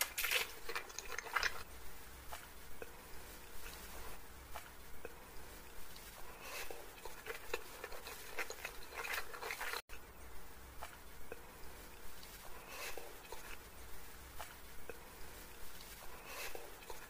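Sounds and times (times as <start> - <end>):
wet chewing mouth clicks: 6.7 - 9.8.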